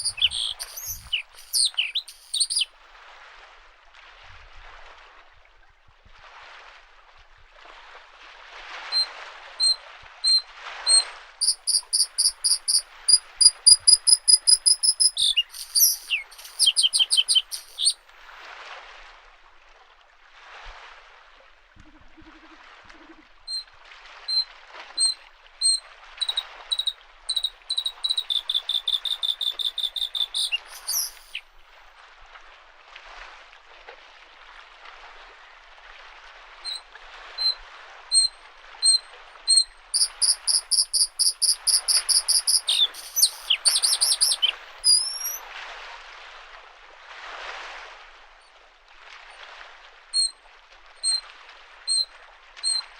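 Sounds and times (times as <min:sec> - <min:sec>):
bird singing trills: 0:00.0 - 0:02.7, 0:09.6 - 0:18.0, 0:25.0 - 0:31.4, 0:38.2 - 0:45.4
small waves lapping shore: 0:00.0 - 0:52.9.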